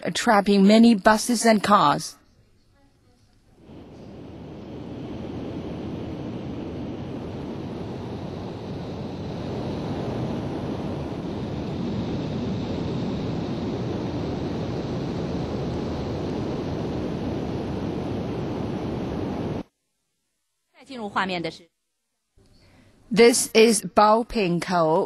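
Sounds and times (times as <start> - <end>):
aircraft engine and airflow roar: 3.6 - 19.7.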